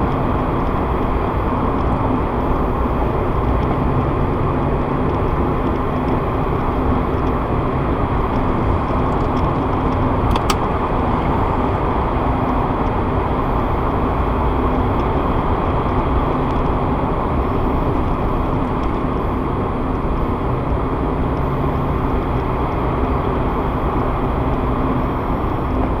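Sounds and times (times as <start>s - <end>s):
car road noise and engine hum: 0.0s - 26.0s
brief click: 10.3s - 10.7s.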